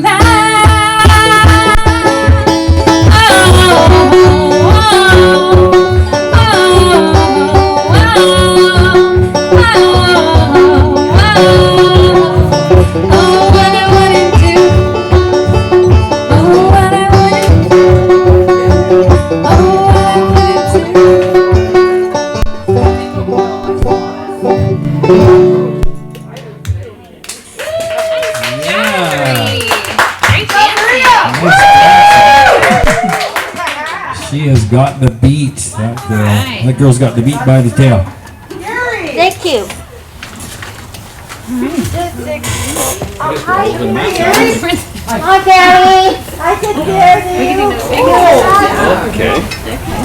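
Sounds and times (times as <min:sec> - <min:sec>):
banjo picking: 0:00.0 - 0:26.8, 0:41.8 - 0:50.0
acoustic duo playing country tune: 0:00.0 - 0:27.0, 0:33.6 - 0:50.0.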